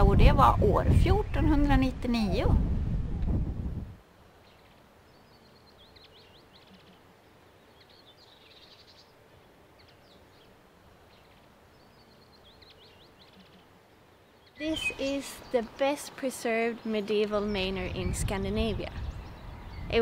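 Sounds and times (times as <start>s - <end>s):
background hiss: 0.9s - 20.0s
small bird chirping: 4.4s - 7.0s, 7.6s - 9.2s, 9.8s - 20.0s.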